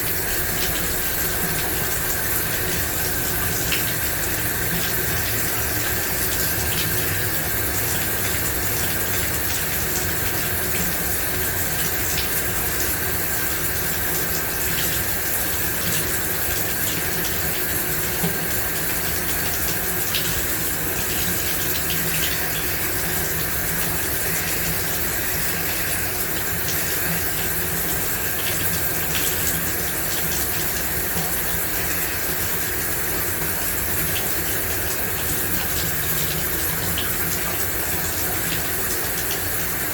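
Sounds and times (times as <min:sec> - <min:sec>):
shower water spraying: 0:00.0 - 0:39.9.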